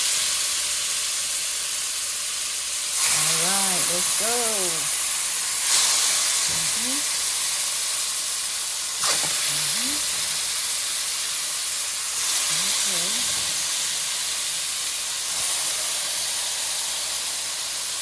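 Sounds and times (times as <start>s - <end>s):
chicken frying in hot oil: 0.0s - 18.0s.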